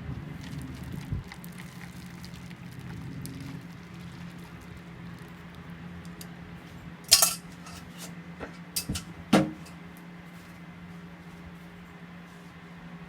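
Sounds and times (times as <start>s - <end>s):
utensils clinking against dishes: 7.1s - 9.8s.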